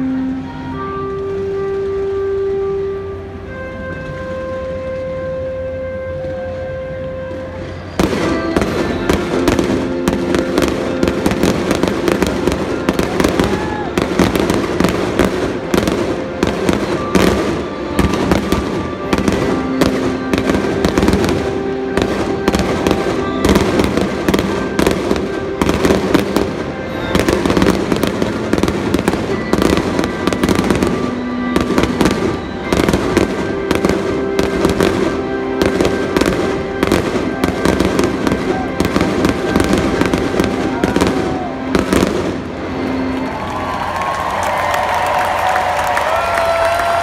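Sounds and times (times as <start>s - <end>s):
music playing: 0.0s - 47.0s
fireworks bangs and crackles: 7.7s - 43.2s.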